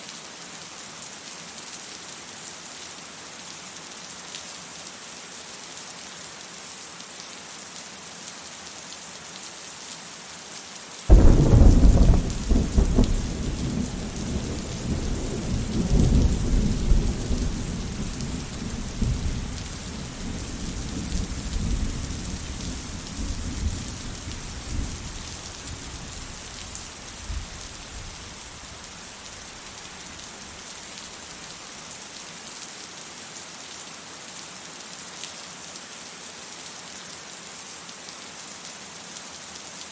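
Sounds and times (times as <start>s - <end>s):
thunder clap rumbling: 11.1s - 25.3s
rain hissing: 11.1s - 32.1s.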